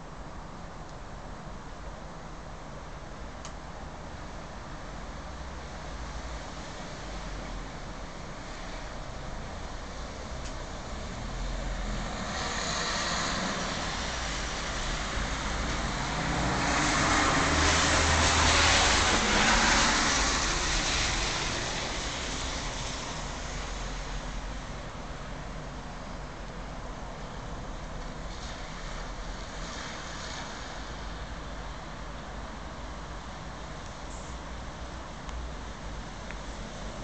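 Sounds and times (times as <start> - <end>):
rain hiss: 0.1 - 37.0
vehicles passing on wet road: 1.8 - 37.0.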